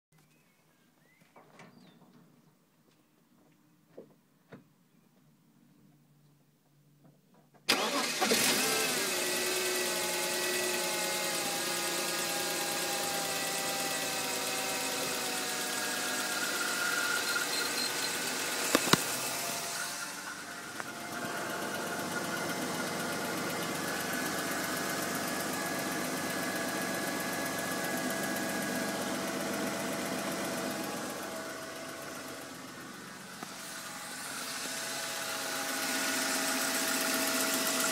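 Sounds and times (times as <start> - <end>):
car engine starting and idling: 7.6 - 37.9
sharp click: 18.7 - 19.2.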